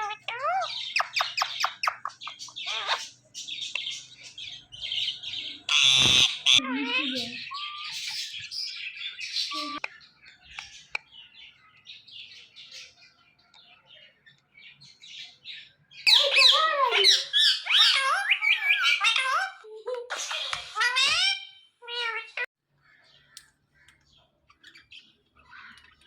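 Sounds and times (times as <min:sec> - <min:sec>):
parakeet chirping and squawking: 0:00.0 - 0:09.9, 0:16.0 - 0:22.5.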